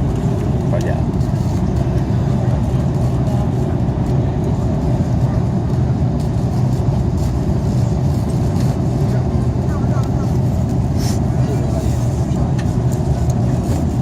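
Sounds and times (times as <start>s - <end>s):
airplane cabin engine rumble: 0.0s - 14.0s.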